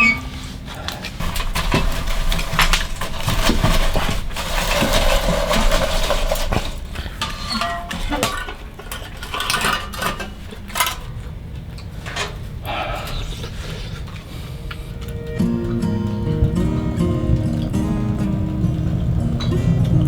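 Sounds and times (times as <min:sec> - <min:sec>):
utensils clinking on dishes: 0:00.0 - 0:20.0
steady hiss: 0:12.0 - 0:20.0.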